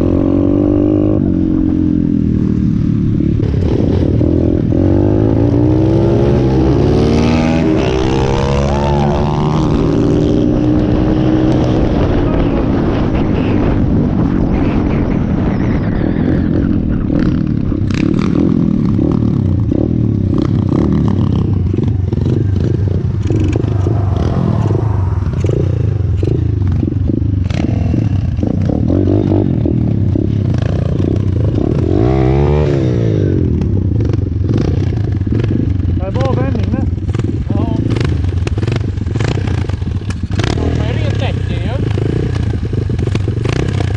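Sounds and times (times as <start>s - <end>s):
motorbike engine under throttle: 15.8s - 43.9s.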